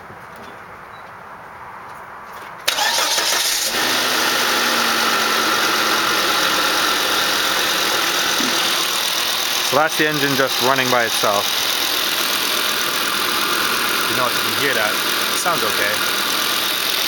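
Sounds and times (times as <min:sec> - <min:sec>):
car engine starting and idling: 0:02.6 - 0:17.0
starter motor cranking: 0:02.7 - 0:17.0
intake air hissing: 0:08.3 - 0:09.1.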